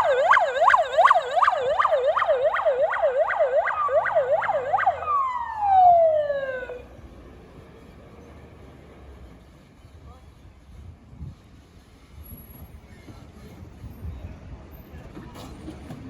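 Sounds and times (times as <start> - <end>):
fire siren yelping and winding down: 0.0 - 6.9.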